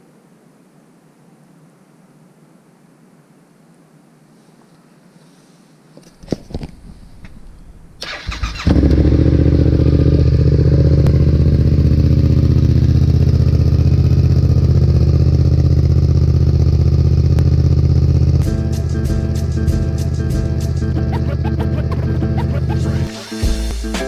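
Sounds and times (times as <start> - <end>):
electric starter cranking engine: 8.0 - 9.4
motorcycle engine idling loudly: 8.4 - 18.4.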